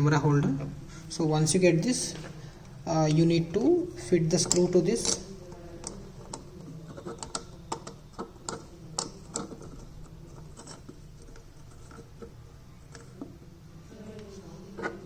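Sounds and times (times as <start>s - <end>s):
screw clicking on plastic: 4.3s - 13.3s.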